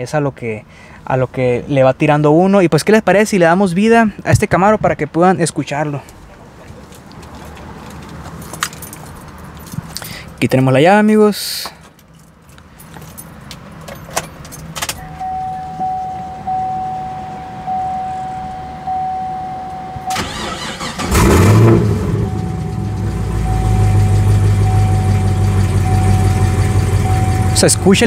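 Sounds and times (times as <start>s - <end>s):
keys clicking in ignition: 7.9s - 10.5s, 11.8s - 16.1s
car engine starting and idling: 13.8s - 28.0s
steady electronic chime: 15.0s - 20.2s, 22.1s - 28.0s.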